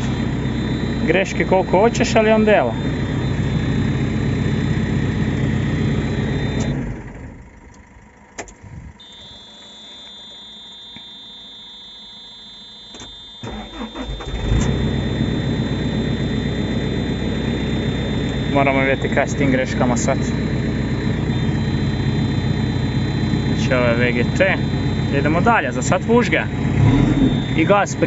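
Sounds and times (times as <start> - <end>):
steady high tone: 0.0 - 6.8, 8.8 - 28.0
diesel engine running: 0.0 - 10.1, 13.2 - 28.0
click: 6.5 - 6.8, 7.6 - 11.1, 12.9 - 13.2
engine cranking and starting: 13.0 - 16.8.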